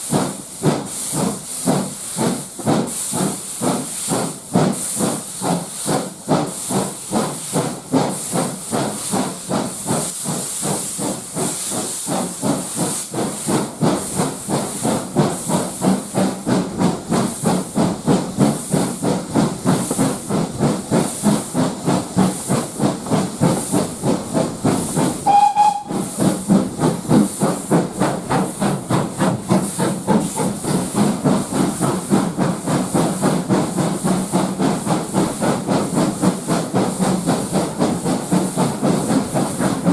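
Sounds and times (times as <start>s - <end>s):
steam locomotive exhaust puffing: 0.0s - 39.9s
steam whistle toot: 25.2s - 26.2s.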